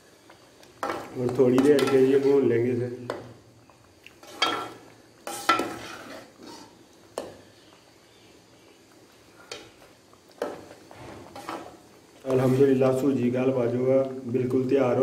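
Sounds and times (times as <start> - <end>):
spoon scraping a metal pan: 4.2 - 6.8, 11.1 - 12.7.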